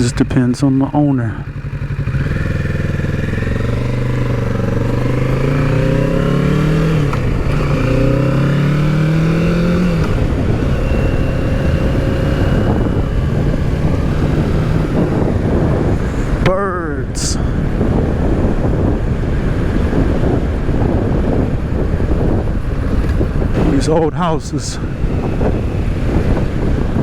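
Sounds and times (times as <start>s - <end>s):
motorcycle engine pulling: 0.0s - 16.6s, 17.6s - 27.0s.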